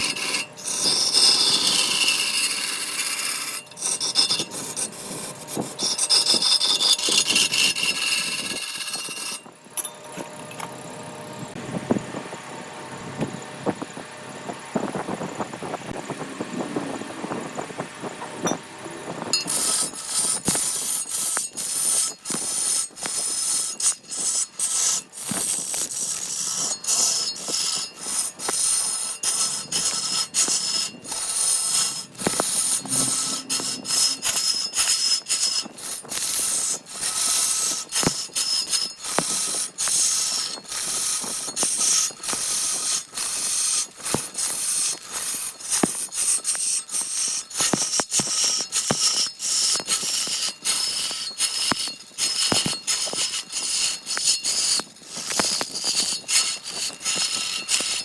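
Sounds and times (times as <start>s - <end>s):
quick abrasive strokes: 0.0s - 9.5s, 19.4s - 58.0s
wood scraping with clicks: 19.4s - 43.1s, 43.8s - 58.0s
tools hissing on wood: 20.1s - 58.0s.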